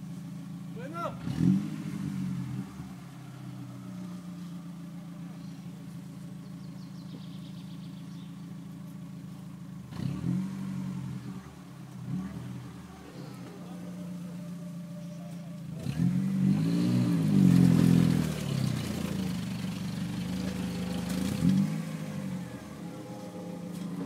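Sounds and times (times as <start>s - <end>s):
car engine running and revving: 0.0s - 24.0s.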